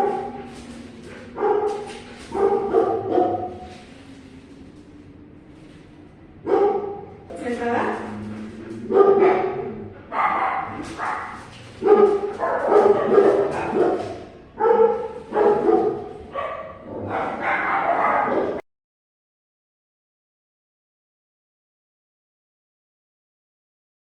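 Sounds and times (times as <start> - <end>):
dog barking and yipping: 0.0 - 0.6, 1.3 - 3.9, 6.5 - 7.1, 8.8 - 18.6.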